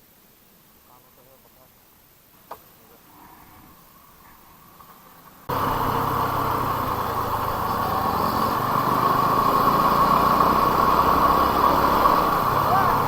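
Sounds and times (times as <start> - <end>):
motorcycle engine running: 5.5 - 13.0.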